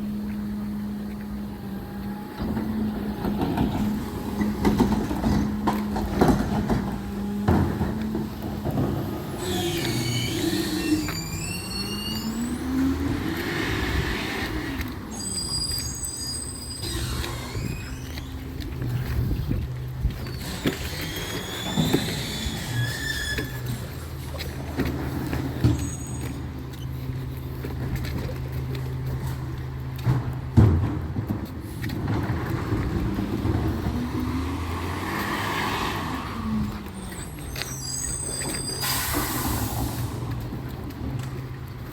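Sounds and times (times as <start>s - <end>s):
truck engine revving: 0.0s - 41.9s
high squeals: 9.2s - 19.2s, 20.1s - 27.4s, 35.1s - 40.4s.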